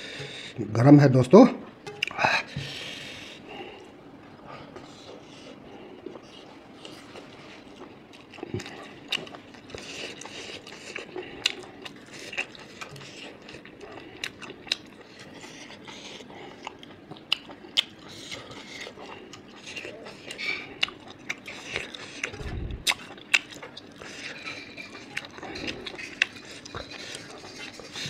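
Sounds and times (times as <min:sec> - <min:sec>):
person chewing with wet mouth clicks: 0:07.7 - 0:15.9, 0:16.5 - 0:27.9.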